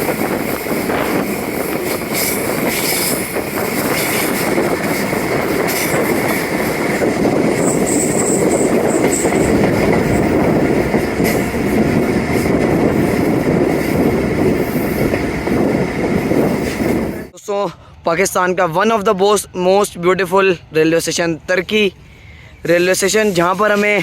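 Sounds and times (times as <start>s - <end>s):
train wheels rumbling: 0.0s - 17.3s
high wheel squeal: 7.6s - 9.6s.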